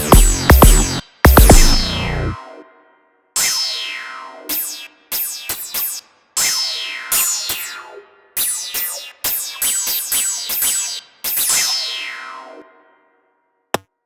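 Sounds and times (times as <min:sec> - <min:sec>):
synthesizer hits sweeping down: 0:00.0 - 0:02.4.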